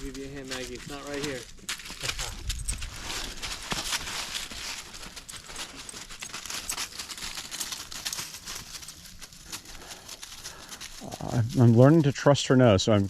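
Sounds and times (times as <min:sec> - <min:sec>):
footsteps crunching through grass: 0:00.0 - 0:13.0.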